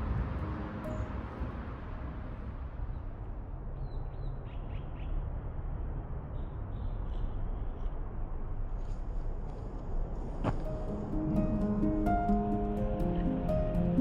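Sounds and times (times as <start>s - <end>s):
steady low rumble: 7.5s - 14.0s.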